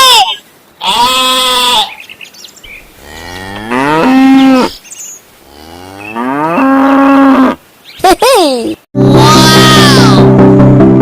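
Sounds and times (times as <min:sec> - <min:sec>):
cow mooing: 0:03.0 - 0:04.8, 0:05.5 - 0:07.6.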